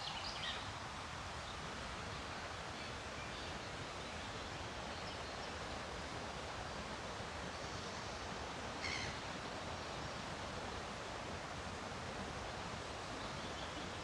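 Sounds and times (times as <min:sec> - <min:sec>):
faint bird chirps: 0:08.8 - 0:09.2.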